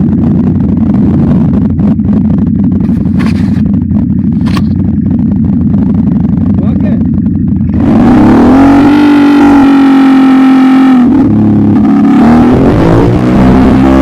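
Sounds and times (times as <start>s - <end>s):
quad bike engine revving: 7.6s - 14.0s.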